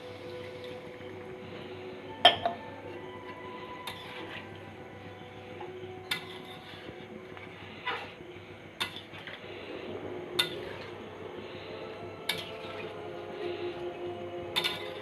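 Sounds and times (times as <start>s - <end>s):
metal utensil clinking on pot: 3.8s - 4.3s, 6.1s - 6.7s, 14.6s - 15.0s.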